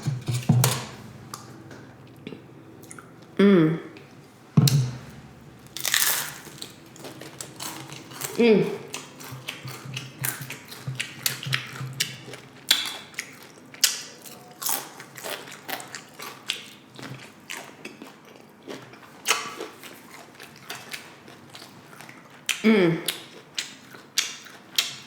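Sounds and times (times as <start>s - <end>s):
crunchy chips being chewed: 5.8s - 25.0s.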